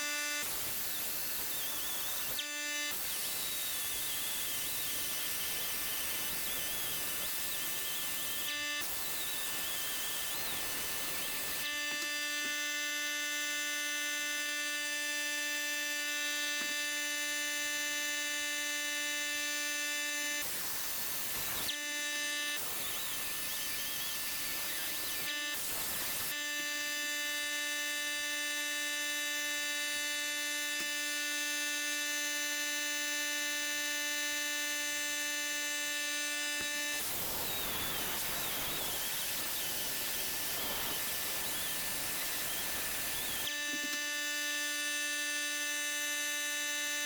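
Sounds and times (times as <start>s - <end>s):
rotary tool whining: 0.0s - 47.0s.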